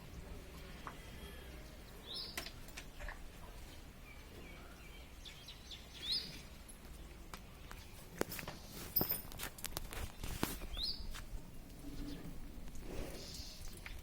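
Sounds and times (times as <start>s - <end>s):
bird chirping: 1.9s - 2.5s, 3.7s - 6.6s, 10.1s - 11.1s.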